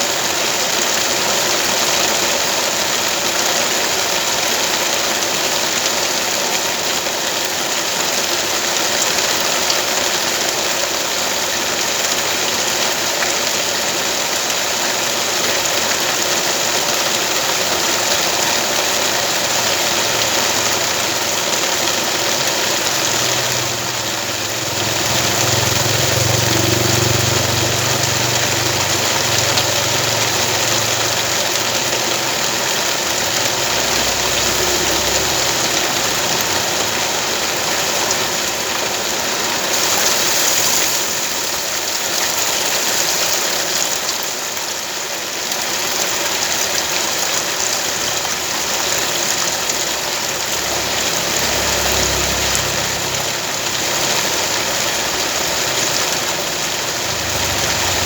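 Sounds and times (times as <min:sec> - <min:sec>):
rain hiss: 0:00.0 - 0:58.0
vehicle engine running: 0:17.7 - 0:44.0, 0:47.9 - 0:58.0
deep engine hum: 0:22.7 - 0:37.6.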